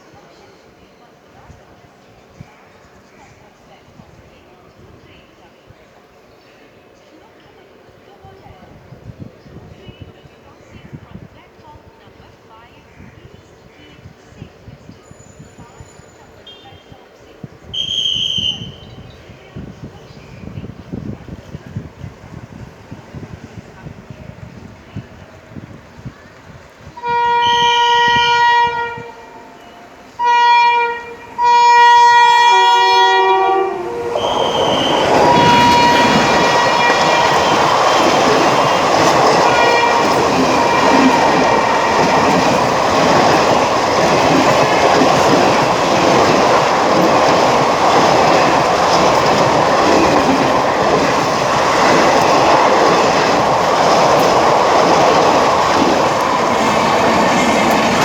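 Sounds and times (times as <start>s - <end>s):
train wheels rumbling on rails: 7.0s - 58.0s
train horn blasts: 27.0s - 58.0s.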